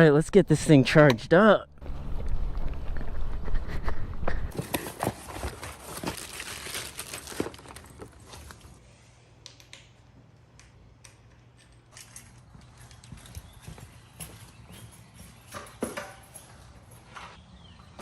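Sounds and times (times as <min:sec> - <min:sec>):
plastic packaging crinkling: 0:04.5 - 0:08.8.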